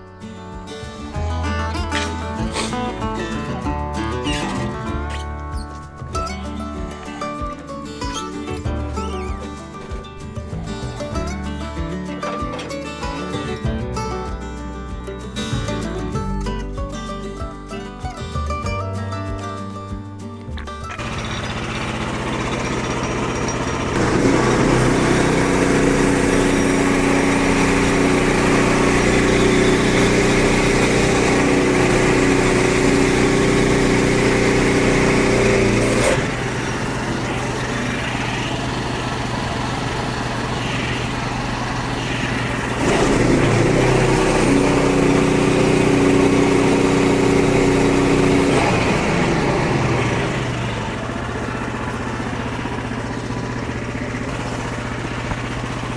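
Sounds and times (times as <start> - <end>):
small gasoline engine running: 0.0 - 16.8, 20.9 - 55.9
band blade sawing through log: 1.8 - 3.6, 21.0 - 51.0.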